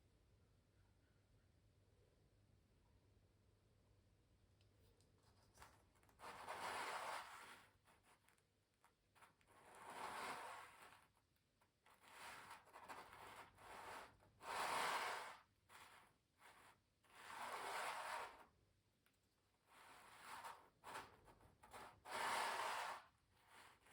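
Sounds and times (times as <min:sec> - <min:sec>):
pencil scratching on canvas: 0:06.2 - 0:08.2, 0:09.2 - 0:11.2, 0:11.9 - 0:18.5, 0:19.7 - 0:23.9.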